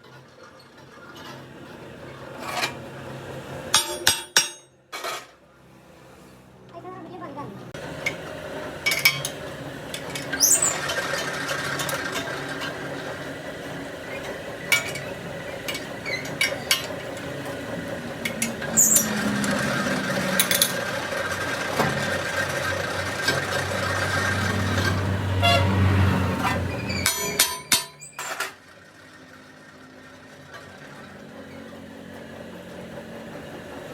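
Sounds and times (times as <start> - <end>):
machine running: 7.8 - 33.9
short high squeals: 10.3 - 11.4, 18.5 - 20.3.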